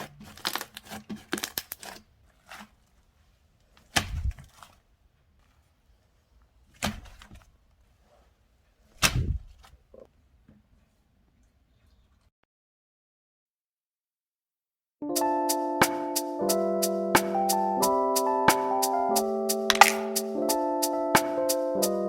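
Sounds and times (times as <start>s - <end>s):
slime slaps with thud: 9.0s - 9.4s, 19.7s - 20.1s
slime crackling clicks: 19.7s - 20.1s.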